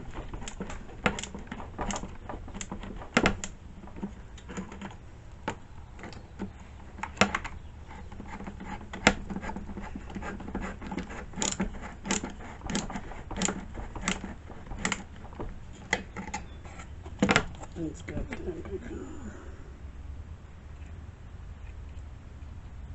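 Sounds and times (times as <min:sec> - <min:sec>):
chainsaw parts clicking and knocking: 0:00.0 - 0:18.7.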